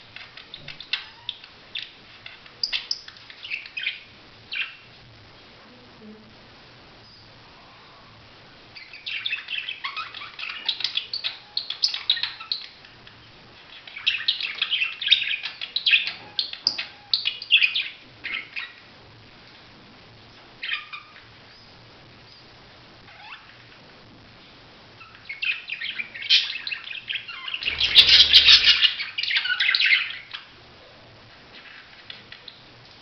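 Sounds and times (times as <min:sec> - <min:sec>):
budgerigar warbling chirps: 0:25.0 - 0:30.1.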